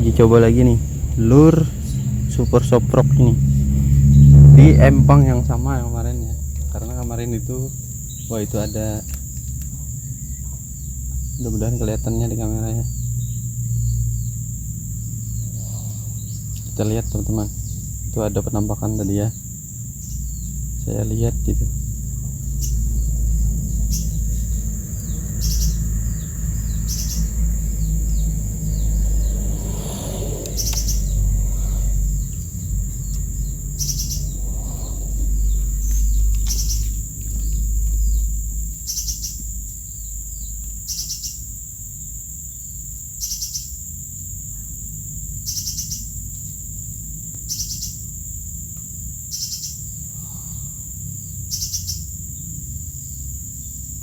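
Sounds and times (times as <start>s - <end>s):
low rumble: 0.0s - 40.6s
high insect drone: 0.0s - 54.0s
bird chirps: 15.2s - 41.5s
high pulsing call: 22.3s - 37.5s.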